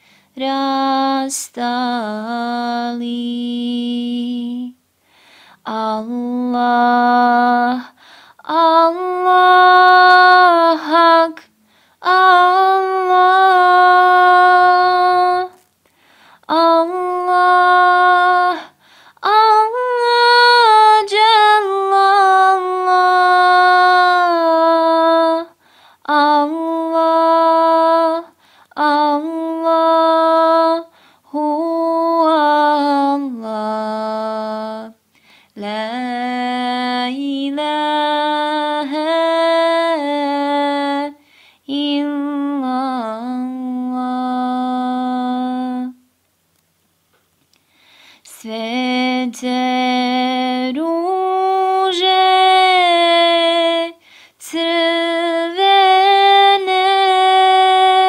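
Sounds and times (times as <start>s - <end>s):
singer breathing: 0.0s - 0.3s, 5.0s - 5.6s, 8.0s - 8.4s, 11.6s - 12.0s, 15.8s - 16.5s, 18.7s - 19.2s, 25.6s - 26.0s, 28.4s - 28.7s, 30.9s - 31.3s, 35.1s - 35.6s, 41.2s - 41.6s, 47.6s - 48.3s, 54.0s - 54.4s
woman singing unaccompanied: 0.0s - 4.9s, 5.6s - 15.7s, 16.4s - 46.0s, 48.2s - 58.0s.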